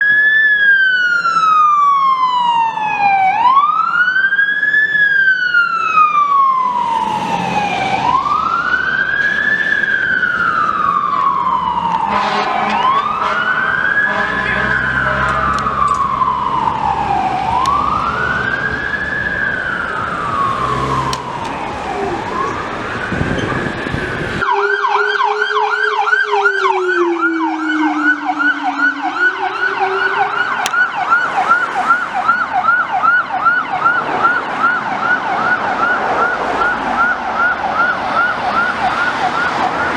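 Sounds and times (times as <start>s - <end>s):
siren wailing: 0.0s - 39.9s
siren fast yelp: 9.7s - 39.9s.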